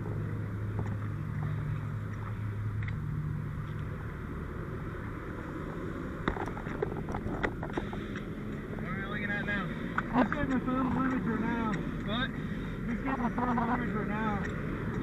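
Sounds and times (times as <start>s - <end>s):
fire engine humming: 0.0s - 15.0s.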